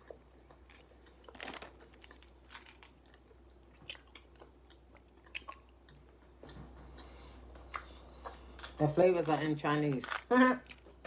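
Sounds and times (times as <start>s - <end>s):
faint candy chewing: 0.0s - 6.2s.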